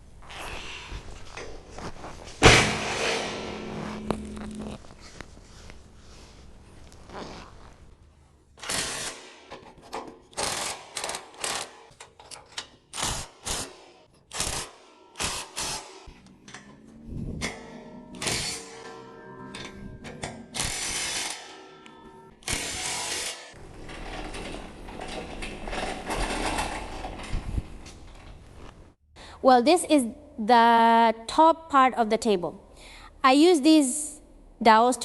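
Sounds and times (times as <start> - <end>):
loud thunk: 2.4 - 3.5
low hum: 2.4 - 7.0.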